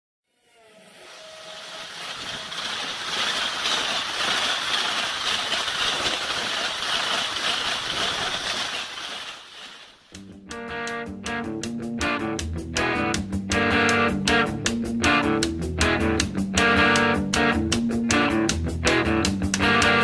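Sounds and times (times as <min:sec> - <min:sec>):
train passing at high speed: 0:00.7 - 0:10.0
strummed guitar music: 0:10.2 - 0:20.0.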